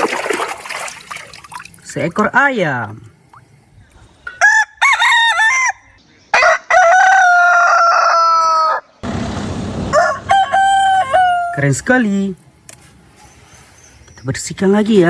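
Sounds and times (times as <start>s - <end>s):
rooster crowing: 4.4s - 9.0s, 9.9s - 11.6s
rooster clucking calls: 10.0s - 11.6s.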